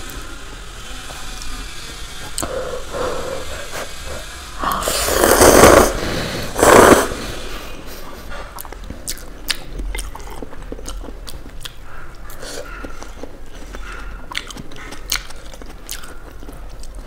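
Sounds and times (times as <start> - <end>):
chewing noodles: 8.3 - 17.0.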